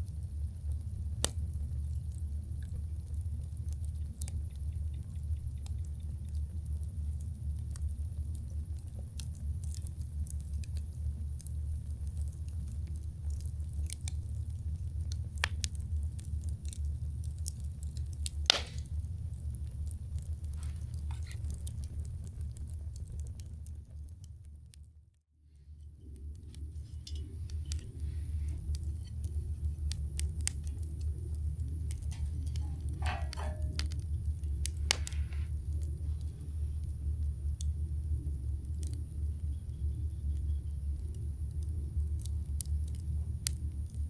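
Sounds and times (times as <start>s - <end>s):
campfire crackling: 0.0s - 44.0s
fire popping: 0.0s - 44.0s
low rumble: 0.0s - 44.0s.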